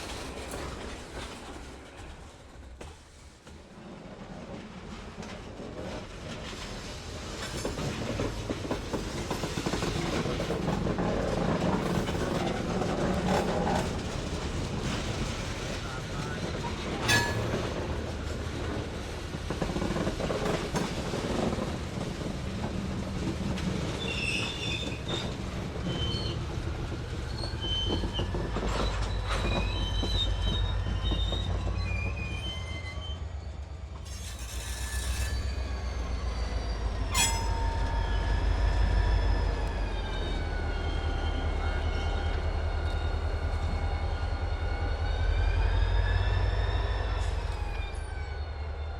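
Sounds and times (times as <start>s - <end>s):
diesel locomotive running: 0.0s - 48.9s
wheels squealing on rail: 5.9s - 18.8s, 23.6s - 48.9s
click: 39.6s - 39.8s.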